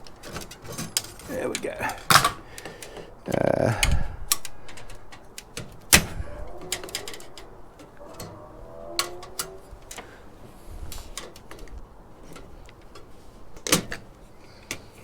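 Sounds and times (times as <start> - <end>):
hard-drive sleds clicking and knocking: 0.0 - 15.0
faint squeak: 6.1 - 10.8.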